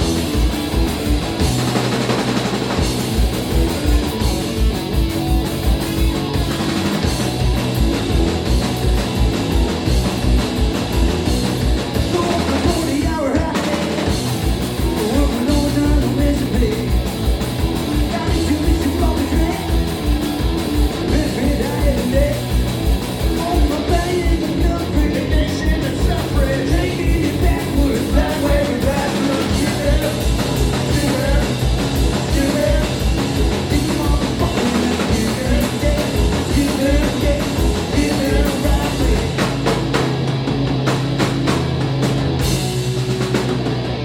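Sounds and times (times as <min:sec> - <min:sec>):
bass guitar: 0:00.0 - 0:44.0
distorted electric guitars: 0:00.0 - 0:44.0
fast driving drum beat: 0:00.0 - 0:44.0
person singing: 0:14.8 - 0:17.1, 0:18.0 - 0:19.8, 0:23.3 - 0:39.6.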